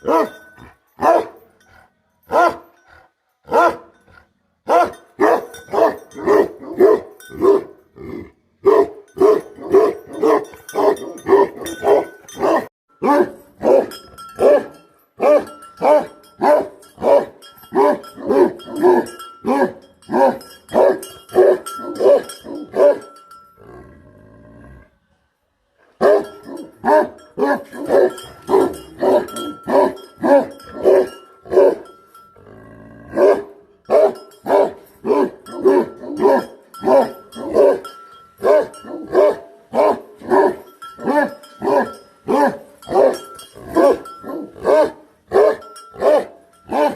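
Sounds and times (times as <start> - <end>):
dog barking deeply: 8.6 - 22.2, 33.1 - 37.8.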